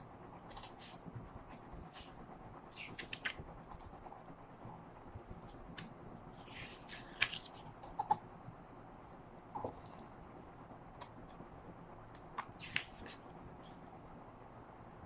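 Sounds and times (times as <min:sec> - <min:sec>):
paper pages rustling: 0:02.7 - 0:03.4, 0:05.7 - 0:08.2, 0:12.4 - 0:13.3.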